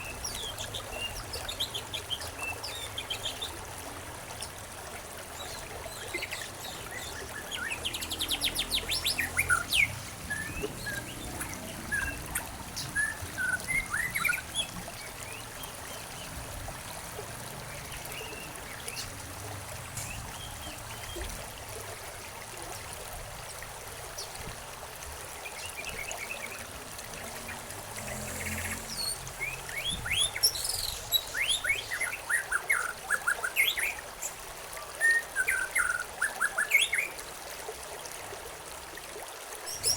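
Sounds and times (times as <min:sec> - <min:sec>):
songbirds chirping and trilling: 0:05.2 - 0:22.9, 0:25.3 - 0:34.4, 0:39.7 - 0:39.9.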